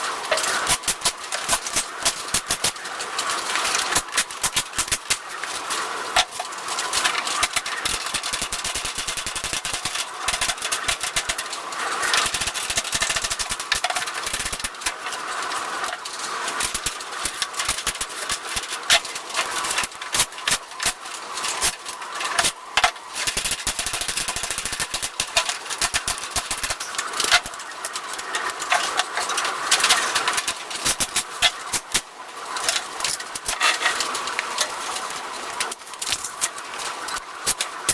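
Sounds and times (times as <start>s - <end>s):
power tool rattling: 0.0s - 37.9s.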